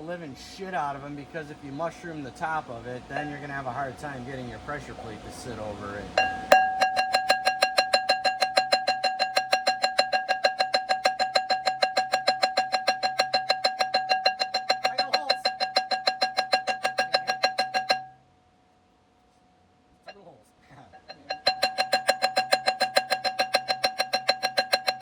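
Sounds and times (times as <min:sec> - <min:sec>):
flywheel ringing: 0:06.2 - 0:18.2, 0:21.0 - 0:25.0.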